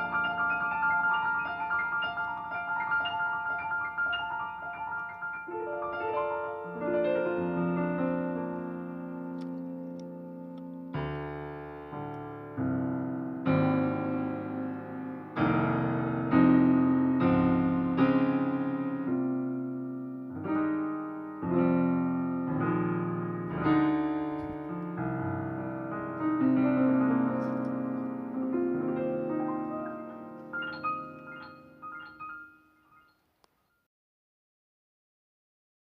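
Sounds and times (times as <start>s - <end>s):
slow piano chords: 0.0s - 33.2s.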